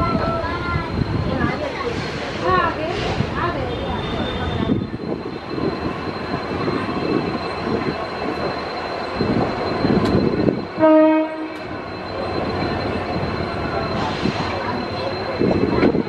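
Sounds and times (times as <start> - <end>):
train wheels rumbling on rails: 0.0 - 16.0
train horn: 10.8 - 11.7.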